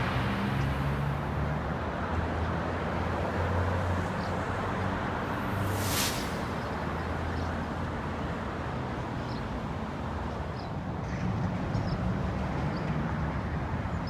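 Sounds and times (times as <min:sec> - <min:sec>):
traffic noise with low hum: 0:00.0 - 0:14.0.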